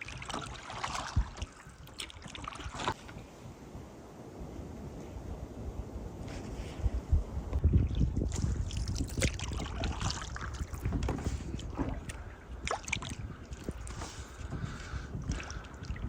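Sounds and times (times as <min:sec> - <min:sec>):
paddle splashing water: 0:00.0 - 0:03.5, 0:07.5 - 0:16.0
wind rumble on microphone: 0:00.0 - 0:16.0.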